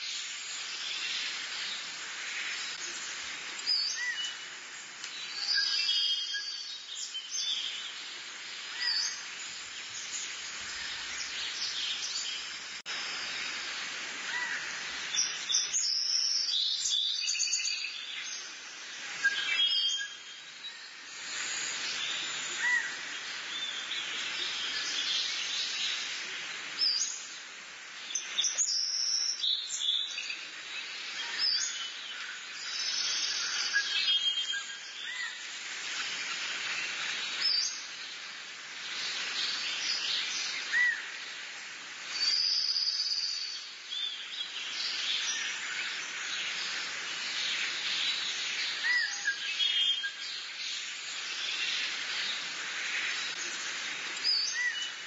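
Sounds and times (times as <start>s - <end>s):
steady outdoor hiss: 0.0s - 55.0s
birds chirping and calling: 3.6s - 4.4s.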